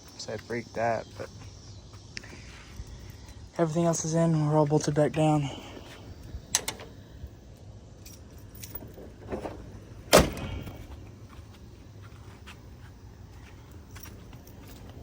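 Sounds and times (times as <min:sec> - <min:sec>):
sharp loud thump: 0:10.1 - 0:10.8.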